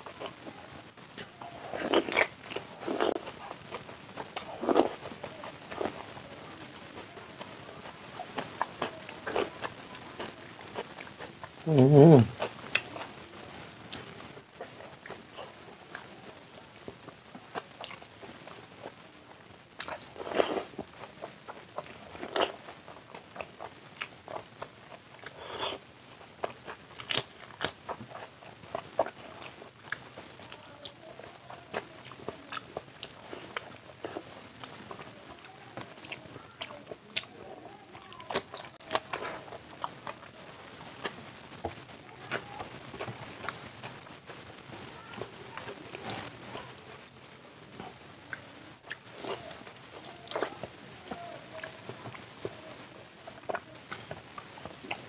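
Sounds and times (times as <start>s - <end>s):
person chewing and biting food: 1.2s - 5.1s, 19.8s - 20.8s, 21.5s - 25.8s, 26.4s - 30.6s.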